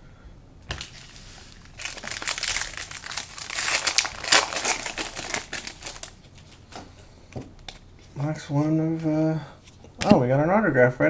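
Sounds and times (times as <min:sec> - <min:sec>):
card pack wrapper tearing: 0:00.7 - 0:06.2.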